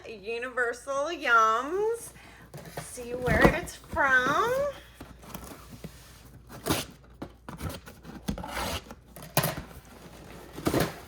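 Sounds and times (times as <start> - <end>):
cardboard box scraping and rustling: 2.6 - 9.0.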